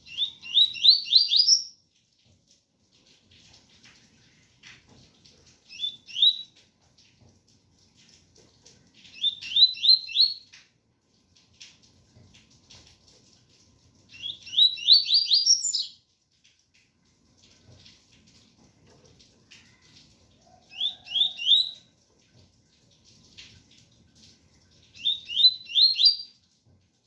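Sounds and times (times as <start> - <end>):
bird whistling song: 0.0 - 1.8, 5.7 - 6.5, 9.1 - 10.5, 14.1 - 16.0, 20.7 - 21.8, 25.0 - 26.4.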